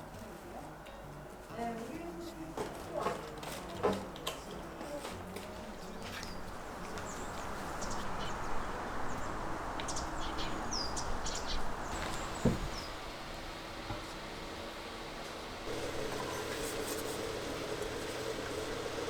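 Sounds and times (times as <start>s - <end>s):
outdoor background hiss: 0.0s - 19.0s
small birds chirping: 5.8s - 13.2s
dull thump: 11.9s - 13.0s.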